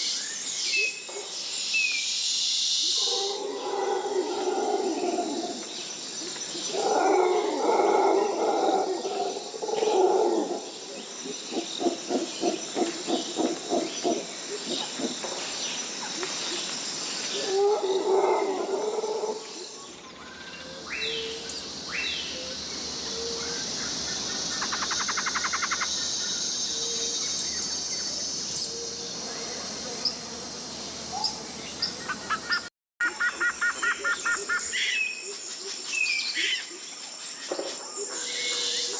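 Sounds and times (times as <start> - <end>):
high-pitched insect drone: 20.0 - 32.6.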